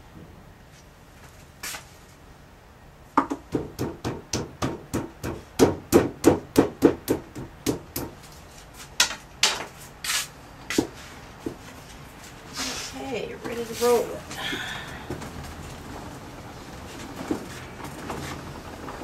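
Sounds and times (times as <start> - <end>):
clay being pounded by hand: 3.2 - 8.2.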